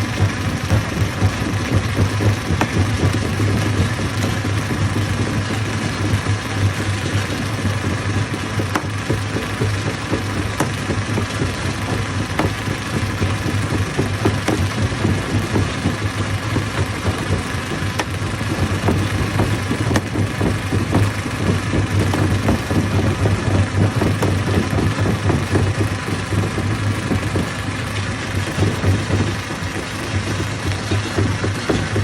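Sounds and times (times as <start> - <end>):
stone crusher droning and rattling: 0.0 - 32.0.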